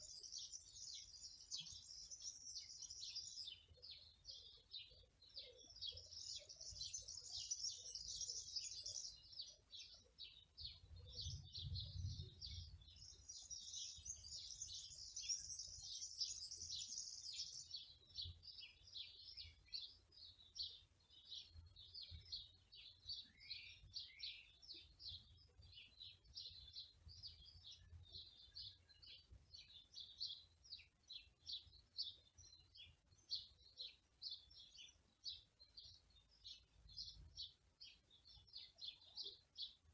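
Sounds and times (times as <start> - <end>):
songbirds chirping and trilling: 0.0 - 39.9
faint low rumble: 11.2 - 13.0.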